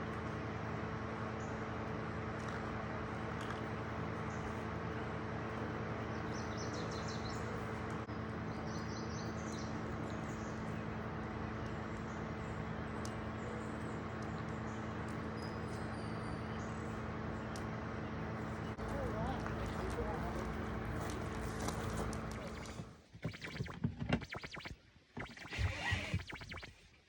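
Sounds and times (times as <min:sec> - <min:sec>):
steady hum and hiss: 0:00.0 - 0:23.0
small birds chirping: 0:06.0 - 0:27.0.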